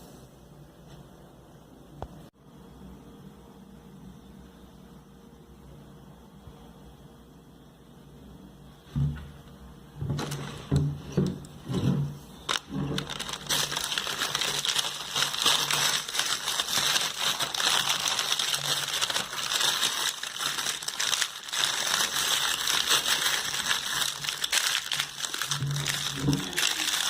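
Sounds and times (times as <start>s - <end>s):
packing material crinkling: 10.1s - 27.0s.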